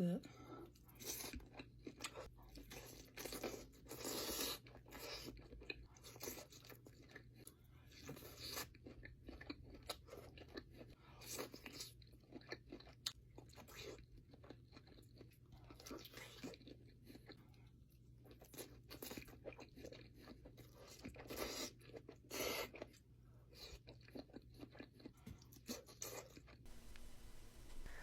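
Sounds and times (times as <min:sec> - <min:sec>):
crunching and chewing crisp food: 0:00.3 - 0:28.0
steady low hum: 0:26.7 - 0:28.0.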